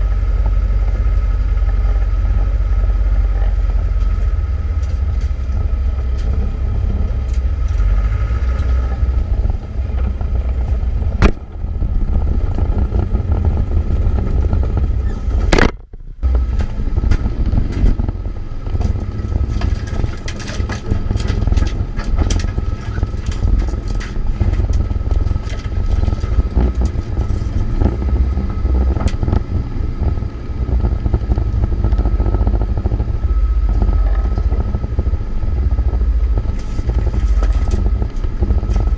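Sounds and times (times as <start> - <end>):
engine and drivetrain drone: 0.0 - 38.9
sharp knock: 15.5 - 16.0.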